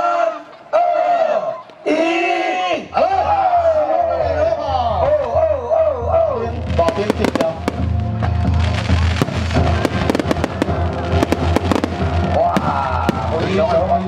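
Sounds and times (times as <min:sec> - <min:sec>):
music playing: 0:04.2 - 0:14.0
fireworks bangs and crackles: 0:06.5 - 0:14.0.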